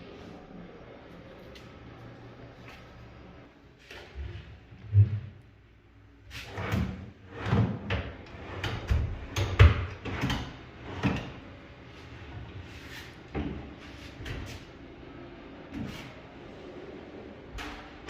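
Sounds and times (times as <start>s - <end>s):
cabinet parts sliding: 6.3s - 14.8s.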